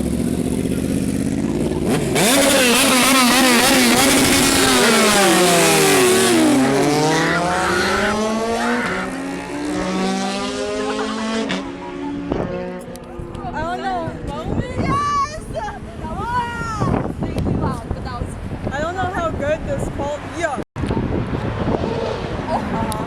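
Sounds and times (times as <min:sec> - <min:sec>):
car engine revving: 0:00.0 - 0:14.3.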